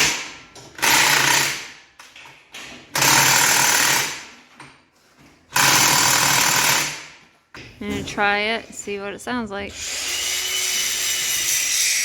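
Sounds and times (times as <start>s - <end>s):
angle grinder grinding metal: 9.8s - 12.0s.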